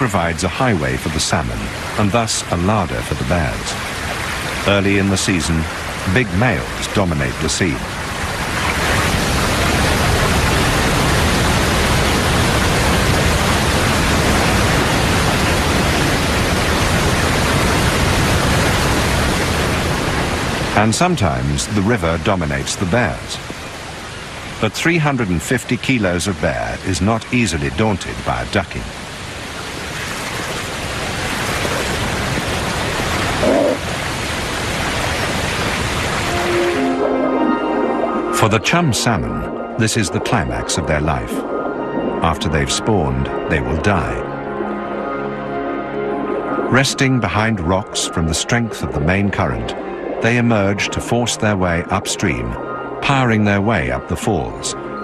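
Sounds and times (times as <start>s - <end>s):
river rushing loudly: 0.0s - 44.3s
music tones: 36.2s - 55.0s.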